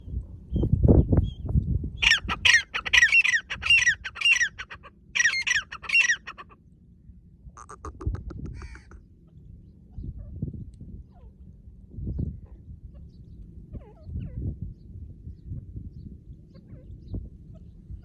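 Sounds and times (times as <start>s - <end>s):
partridge calling: 2.0s - 6.6s, 7.6s - 9.0s.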